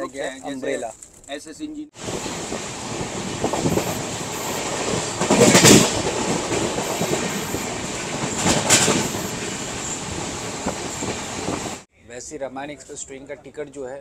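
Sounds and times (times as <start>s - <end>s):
train clatter surges: 2.0s - 11.9s
train wheels rushing on rails: 2.0s - 11.9s.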